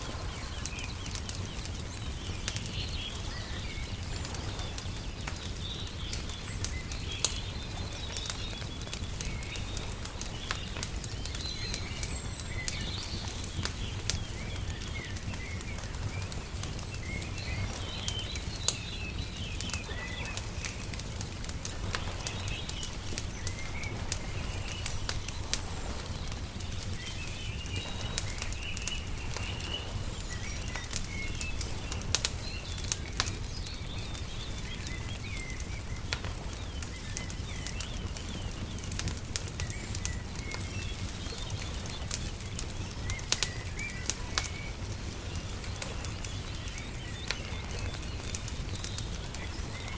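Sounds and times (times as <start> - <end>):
steady low rumble: 0.0 - 38.0
small birds chirping: 0.0 - 49.9
wood fire crackling and popping: 0.0 - 49.9.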